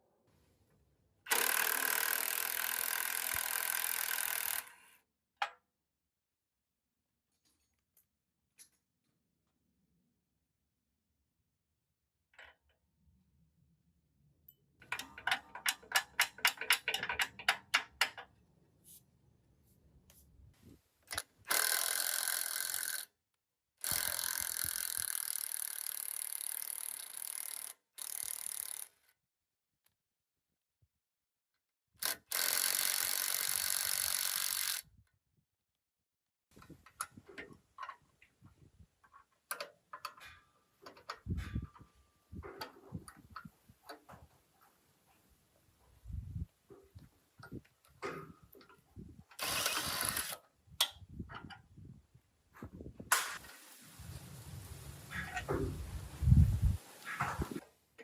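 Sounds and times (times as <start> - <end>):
power tool rattling: 1.3 - 4.8, 14.8 - 18.2, 21.1 - 23.1, 23.8 - 28.9, 32.0 - 34.8, 49.3 - 50.4
power tool whirring: 1.3 - 4.8, 32.0 - 34.8, 49.4 - 50.4.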